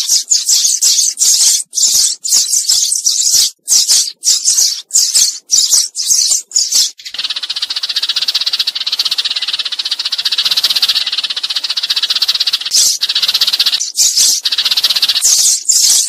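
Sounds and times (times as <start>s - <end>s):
sparrow chattering rattle: 0.0s - 16.0s
sparrows chirping: 0.0s - 16.0s.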